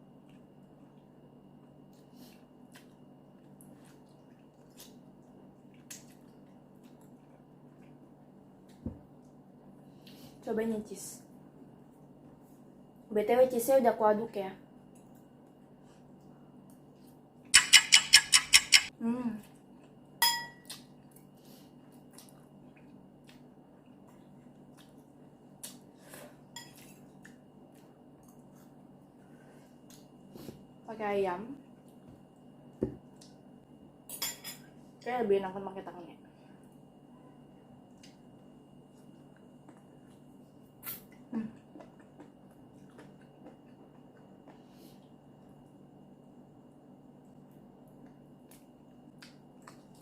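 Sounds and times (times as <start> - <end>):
low room hum: 0.0 - 50.0
soft eating clicks and taps: 47.9 - 50.0.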